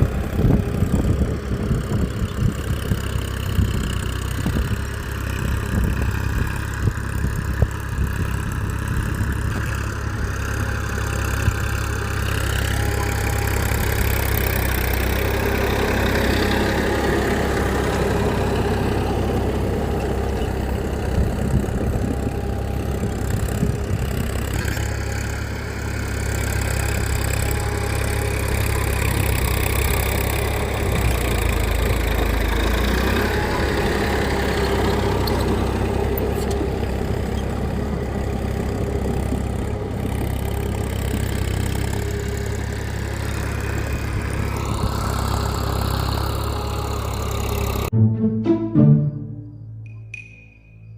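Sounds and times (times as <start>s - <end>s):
engine idling: 0.0s - 47.9s.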